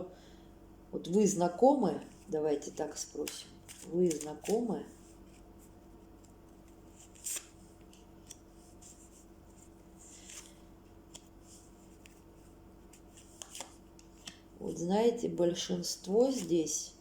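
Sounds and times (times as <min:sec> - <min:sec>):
faint steady hum: 0:00.0 - 0:17.0
cards rustling and tapping: 0:03.1 - 0:05.5, 0:06.1 - 0:14.5.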